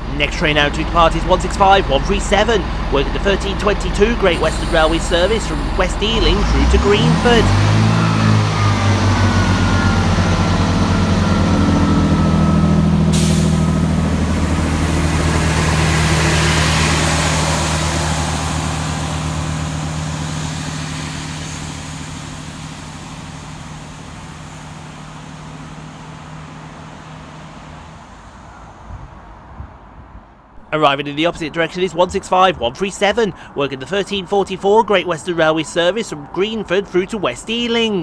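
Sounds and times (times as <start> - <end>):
train diesel engines droning: 0.0 - 38.0
hiss of air: 4.3 - 6.8, 13.2 - 23.3.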